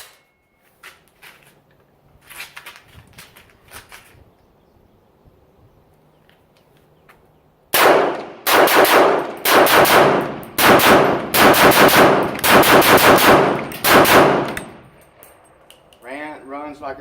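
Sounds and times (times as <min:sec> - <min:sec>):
loud gunshots with echo: 0:07.8 - 0:14.9.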